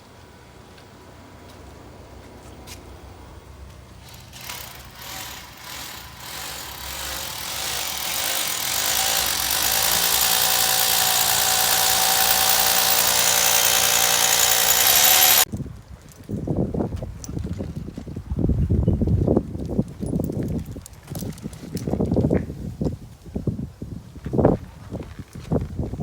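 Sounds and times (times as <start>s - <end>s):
machine motor whining: 4.0s - 15.5s.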